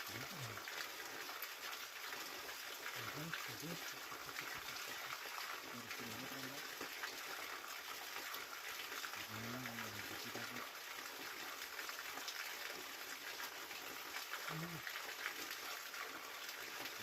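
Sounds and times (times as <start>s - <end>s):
low voice murmuring: 0.1s - 0.6s, 3.0s - 4.0s, 5.6s - 6.8s, 9.2s - 10.7s, 14.4s - 14.9s.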